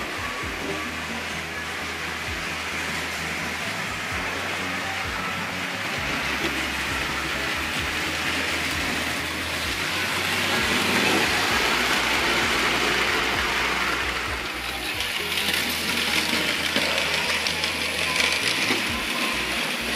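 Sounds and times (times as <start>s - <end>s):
model trains rolling on metal track: 0.0s - 19.9s.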